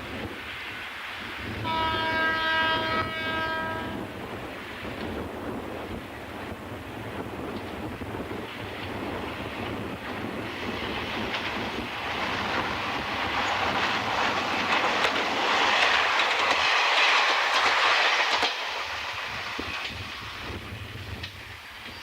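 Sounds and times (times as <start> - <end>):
diesel train passing: 0.0 - 22.0
wind noise on microphone: 0.0 - 22.0
wheels clattering over rail joints: 8.9 - 20.0.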